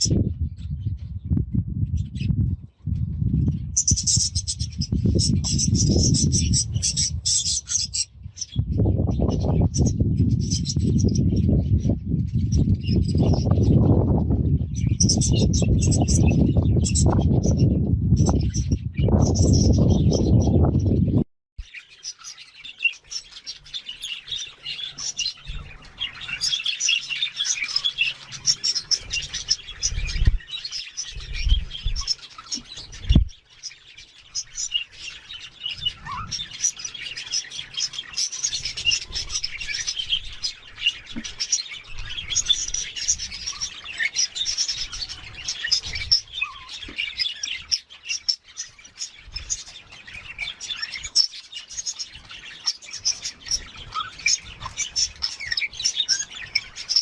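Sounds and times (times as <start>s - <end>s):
budgerigars chirping: 3.8s - 8.6s, 21.7s - 57.0s.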